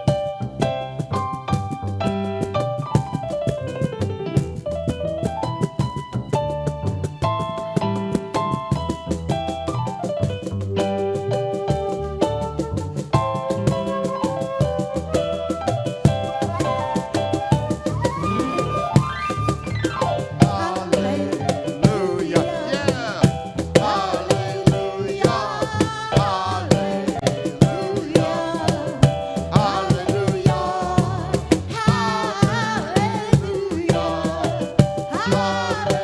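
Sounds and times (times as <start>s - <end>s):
drum and percussion beat: 0.0s - 36.0s
sliding melody line: 10.8s - 36.0s
band playing: 16.3s - 33.4s.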